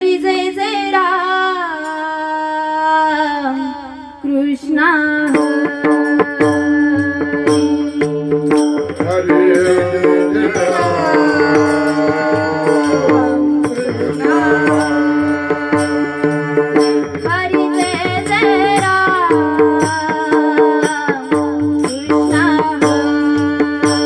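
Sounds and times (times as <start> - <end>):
person singing devotional song: 0.0 - 24.0
drum rhythm: 5.3 - 24.0.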